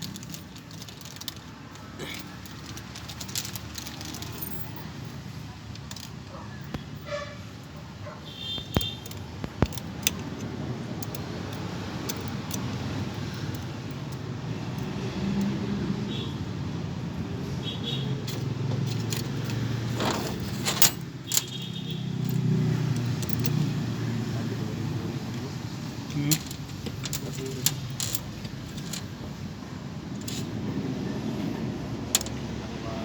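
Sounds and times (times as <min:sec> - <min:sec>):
metal tools clinking: 0:00.0 - 0:16.3, 0:18.1 - 0:30.9, 0:32.0 - 0:32.6
low rumble of road traffic: 0:00.0 - 0:33.0.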